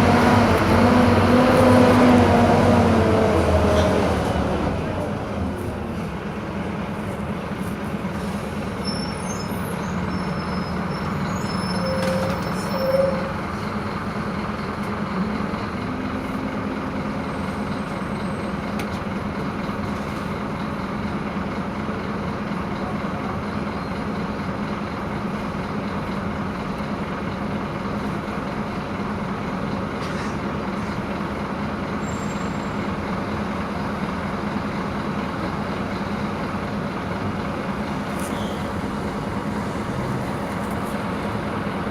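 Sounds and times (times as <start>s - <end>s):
bus diesel engine running: 0.0s - 41.9s.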